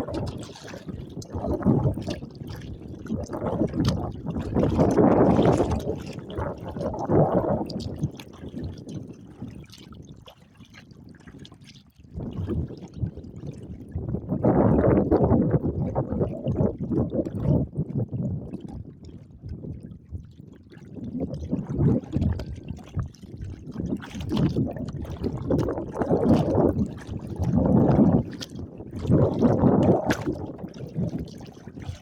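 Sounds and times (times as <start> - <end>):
wind buffeting microphone: 0.0 - 9.8, 12.1 - 20.3, 20.9 - 32.0
water slapping against kayak hull: 0.0 - 10.0, 21.7 - 32.0.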